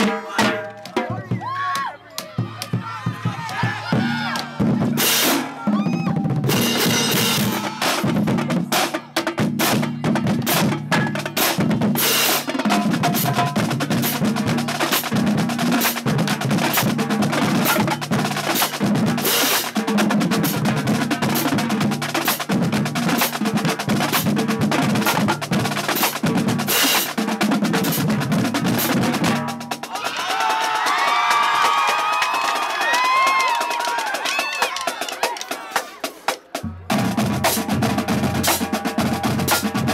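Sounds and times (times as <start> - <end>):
crowd cheering: 0.0 - 9.2, 29.8 - 36.6
pitched bass drums: 2.2 - 29.9, 36.6 - 39.9
snare drum rolls: 10.4 - 39.9.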